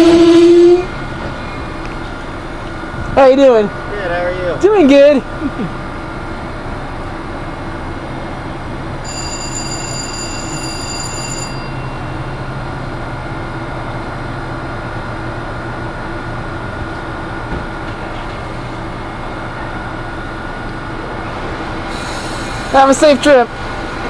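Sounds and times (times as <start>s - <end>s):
train humming at platform: 0.0s - 24.0s
thin high-pitched tone: 9.0s - 12.8s.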